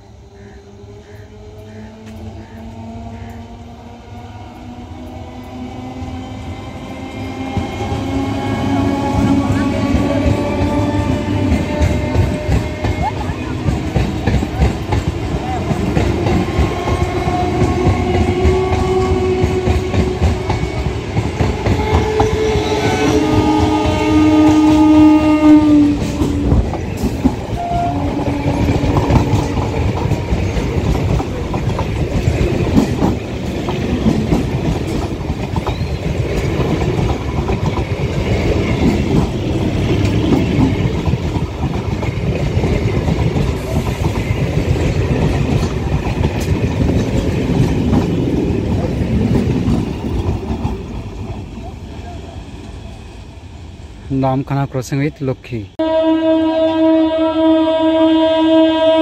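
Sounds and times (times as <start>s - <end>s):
train passing with rumble: 0.0s - 59.0s
train horn blowing: 8.0s - 13.2s, 16.2s - 26.6s, 27.5s - 30.2s, 55.8s - 59.0s
wheels clattering over rail joints: 26.0s - 51.7s.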